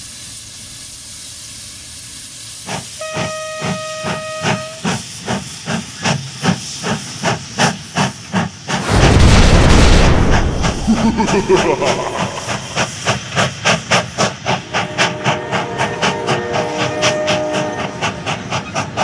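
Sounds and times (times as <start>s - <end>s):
loud rushing hiss: 0.0s - 3.8s, 4.8s - 15.0s
steam locomotive chuffing: 0.0s - 19.0s
steam whistle: 2.9s - 5.0s, 14.7s - 18.2s.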